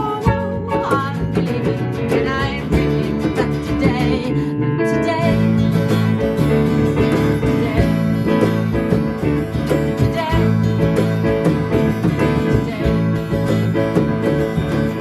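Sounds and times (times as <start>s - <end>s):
band playing with acoustic guitar: 0.0s - 15.0s.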